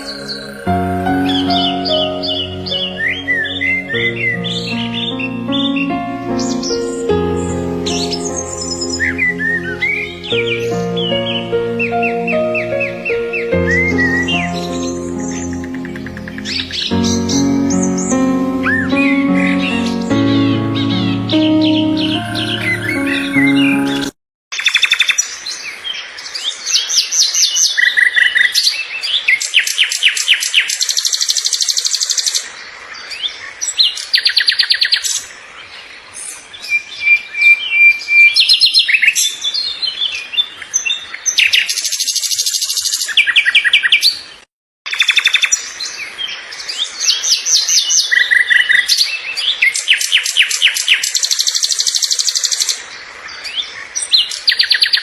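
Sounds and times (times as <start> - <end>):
songbirds chirping and trilling: 0.0 - 24.1.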